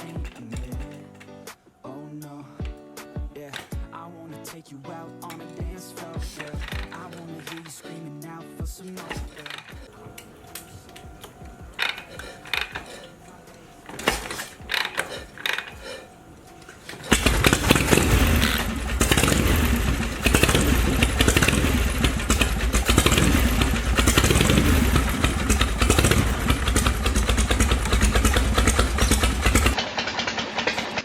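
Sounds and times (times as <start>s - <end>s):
motorcycle engine running: 5.6s - 7.6s, 9.2s - 31.0s.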